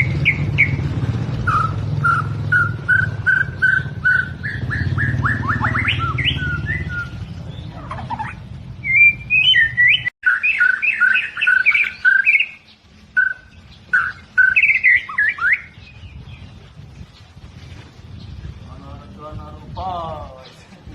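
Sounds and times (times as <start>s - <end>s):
bird singing whistled phrases: 0.0s - 0.8s, 1.4s - 16.4s.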